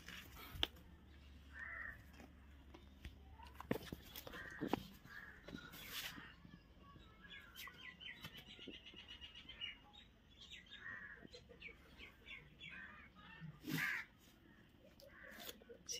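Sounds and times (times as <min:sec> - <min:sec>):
bird chirping: 0:02.8 - 0:13.4.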